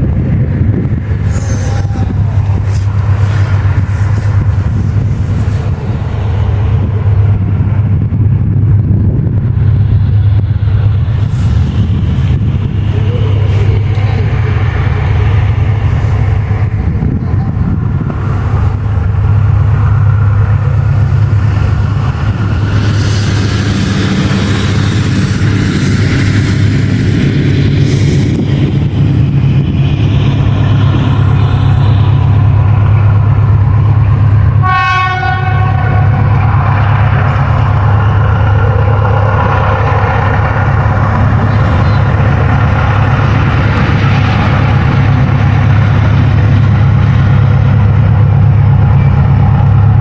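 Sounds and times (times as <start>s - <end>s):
locomotive deep hum: 0.0s - 50.0s.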